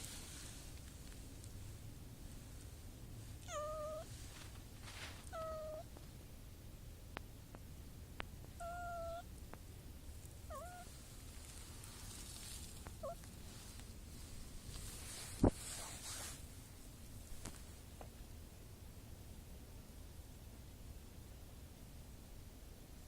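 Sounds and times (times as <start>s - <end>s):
cat meowing: 3.4s - 4.1s, 5.2s - 5.9s, 8.6s - 9.3s, 10.5s - 10.9s, 13.0s - 13.2s.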